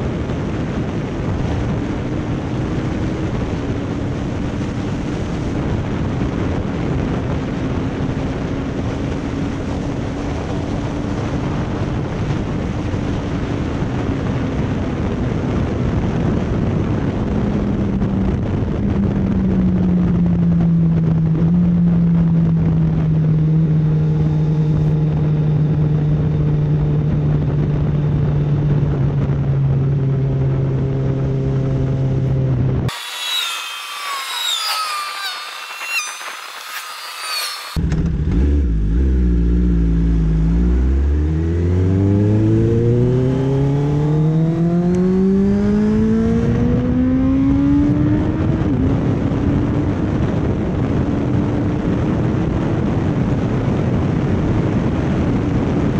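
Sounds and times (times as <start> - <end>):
rushing wind noise: 0.0 - 55.9
motorcycle engine: 18.8 - 50.2.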